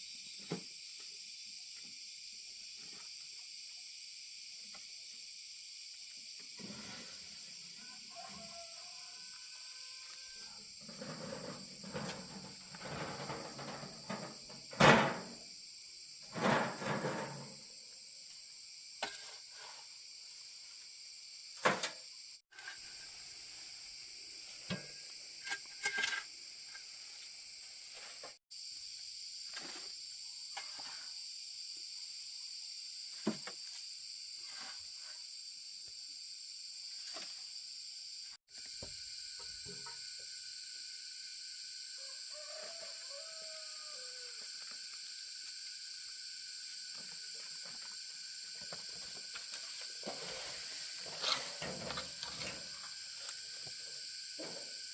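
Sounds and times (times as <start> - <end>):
high-pitched insect chorus: 0.0 - 54.9
scraping and rustling: 10.8 - 15.3, 16.3 - 17.6, 48.6 - 53.7.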